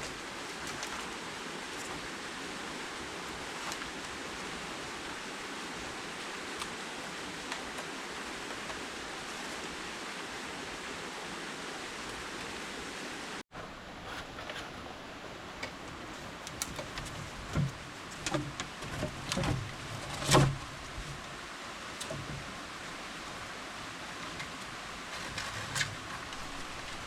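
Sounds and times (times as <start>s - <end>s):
handling knocks and thumps: 15.6s - 21.4s.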